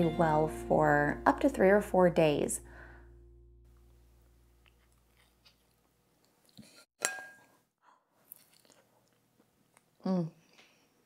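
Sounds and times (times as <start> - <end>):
person chewing: 4.6 - 6.6, 8.2 - 10.7
clink against ceramic plate: 7.0 - 7.5.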